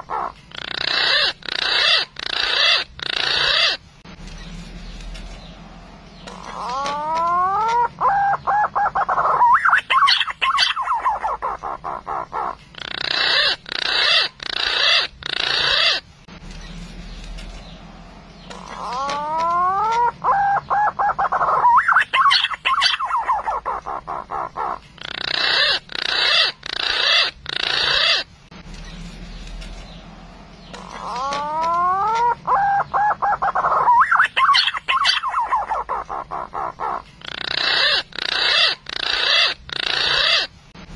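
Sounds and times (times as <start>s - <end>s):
pigeon whistling calls: 6.2s - 16.0s, 18.5s - 28.3s, 30.7s - 40.5s.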